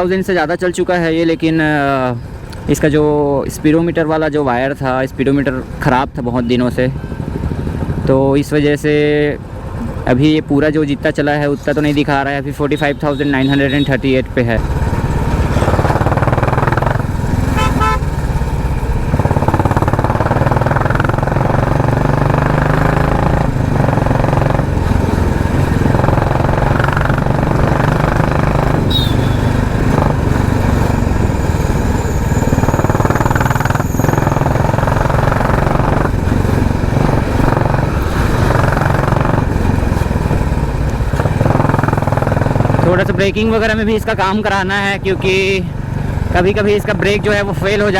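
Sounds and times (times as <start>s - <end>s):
motorcycle engine running: 6.9s - 10.1s, 13.1s - 47.9s.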